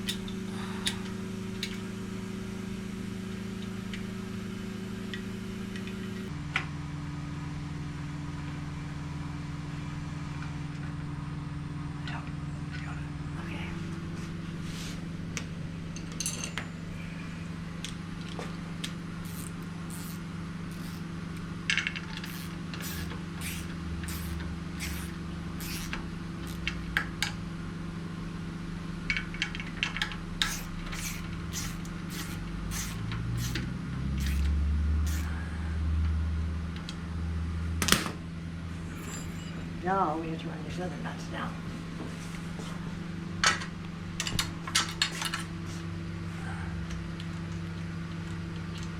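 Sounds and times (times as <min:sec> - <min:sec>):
steady low hum: 0:00.0 - 0:48.9
metal tools clinking: 0:15.9 - 0:16.8, 0:38.8 - 0:39.8.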